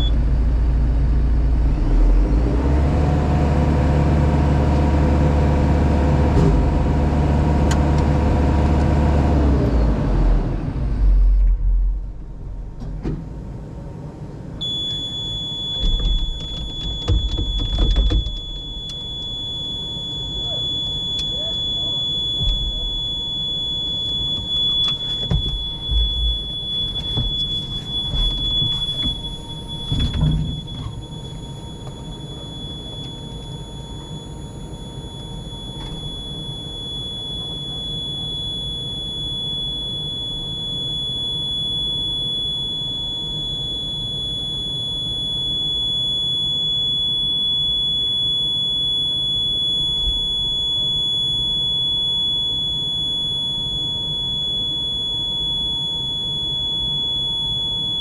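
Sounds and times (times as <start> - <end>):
low engine rumble: 0.0 - 41.1
high-pitched whine: 14.5 - 58.0
knocks and clunks: 15.8 - 19.0, 24.3 - 31.2.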